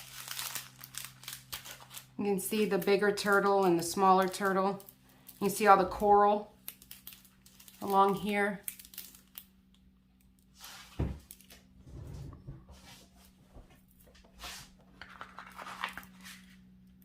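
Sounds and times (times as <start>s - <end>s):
canvas and packaging rustling: 0.0s - 2.2s, 14.4s - 16.7s
low steady hum: 0.0s - 17.0s.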